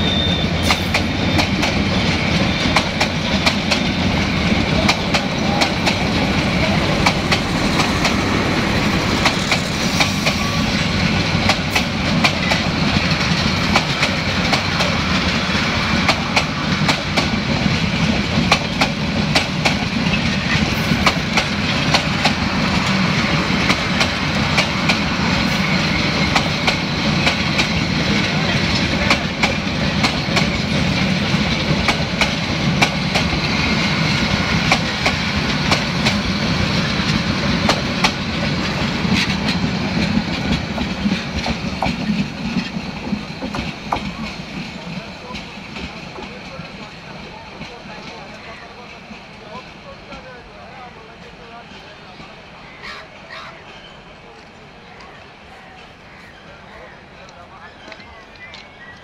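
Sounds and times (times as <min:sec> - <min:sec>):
train wheels rumbling on rails: 0:00.0 - 0:59.0
wheels clicking over rail joints: 0:11.1 - 0:46.9.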